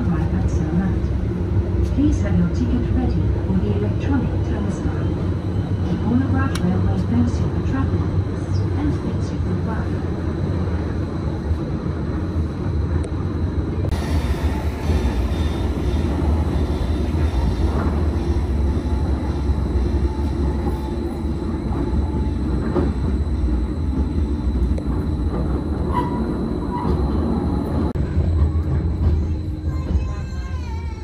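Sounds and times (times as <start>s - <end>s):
train motors and wheels rumbling: 0.0s - 31.0s.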